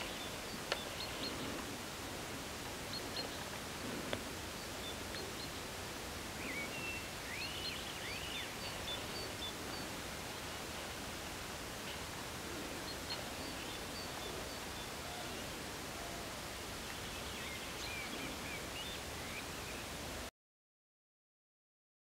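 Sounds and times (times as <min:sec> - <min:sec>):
small birds chirping: 0:00.0 - 0:01.8, 0:06.4 - 0:20.0
outdoor hiss: 0:00.0 - 0:20.3.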